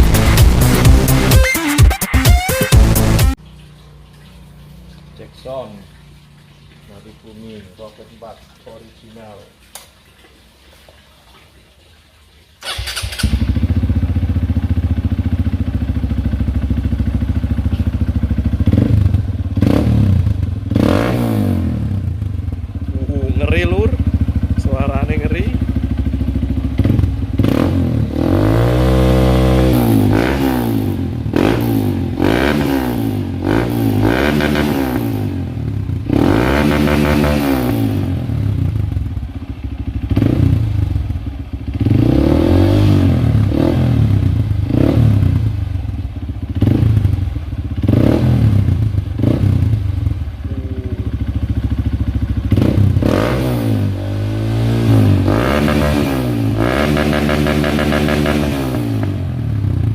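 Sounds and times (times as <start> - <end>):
motorcycle engine revving: 0.0 - 1.4, 12.6 - 59.9.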